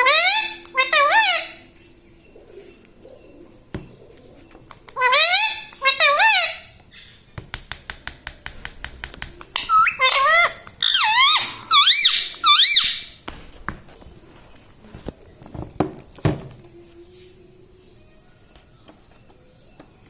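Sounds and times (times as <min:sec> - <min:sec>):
parakeet shrill squawks: 0:00.0 - 0:01.6, 0:05.0 - 0:06.8, 0:09.6 - 0:13.2.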